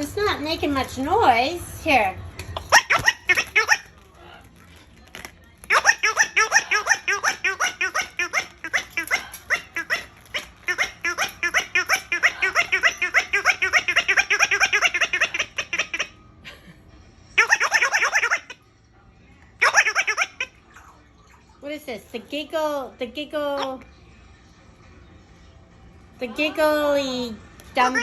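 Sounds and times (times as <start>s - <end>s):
electronic toy giggling: 5.7s - 16.8s, 17.4s - 18.6s.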